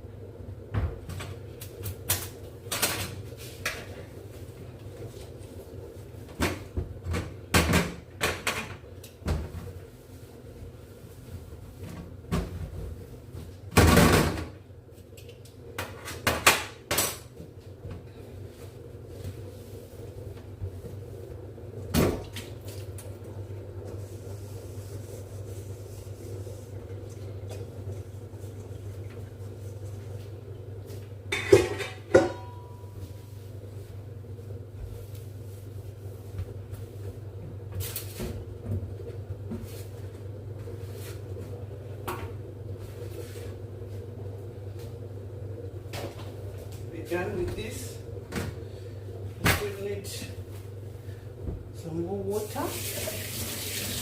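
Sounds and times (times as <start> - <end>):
steady low hum: 0.0 - 52.5
kitchen things clattering: 31.3 - 32.7.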